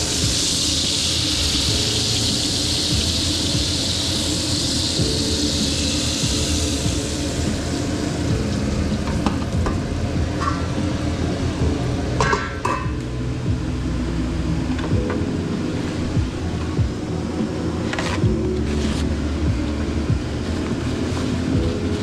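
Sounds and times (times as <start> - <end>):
steak sizzling in a pan: 0.0 - 8.9
steady low hum: 12.8 - 22.0.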